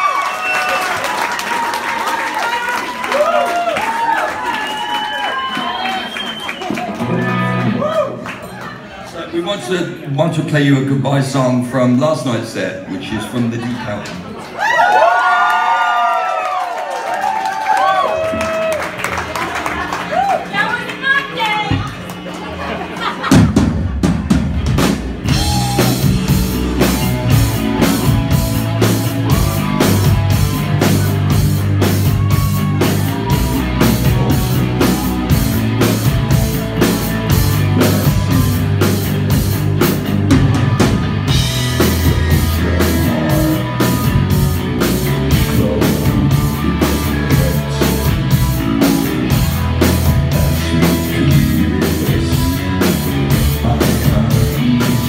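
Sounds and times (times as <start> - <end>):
live rock band playing: 6.1 - 8.9, 20.8 - 55.0
drum kit beat: 23.2 - 55.0.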